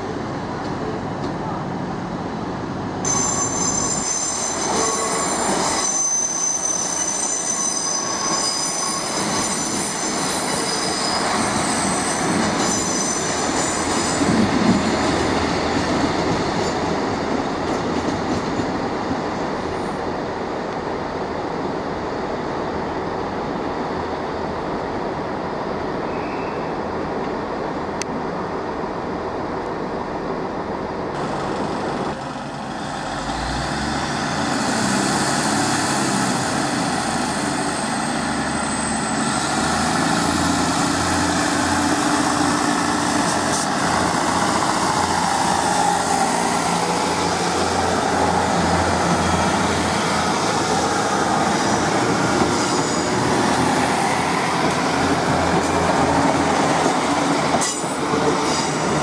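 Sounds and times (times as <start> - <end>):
train running noise: 0.0 - 59.0
train wheels squealing: 3.0 - 15.3, 26.1 - 26.8, 33.2 - 55.0.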